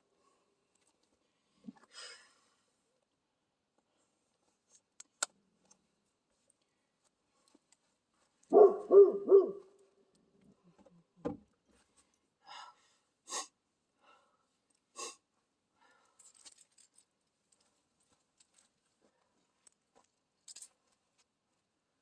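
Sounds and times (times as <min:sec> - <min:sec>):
owl-like hoots: 0:08.6 - 0:09.6.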